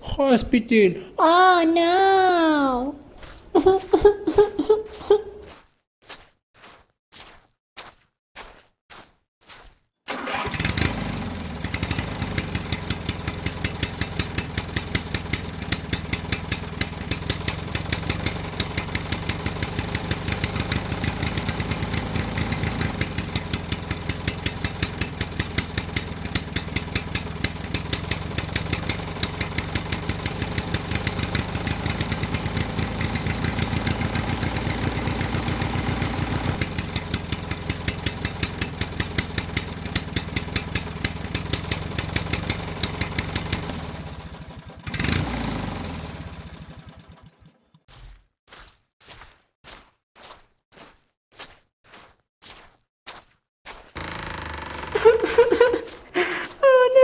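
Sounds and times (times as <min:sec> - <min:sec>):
engine starting: 0:10.1 - 0:12.4, 0:46.4 - 0:47.8, 0:54.0 - 0:56.1
tractor engine idling: 0:10.1 - 0:47.6, 0:54.0 - 0:56.4.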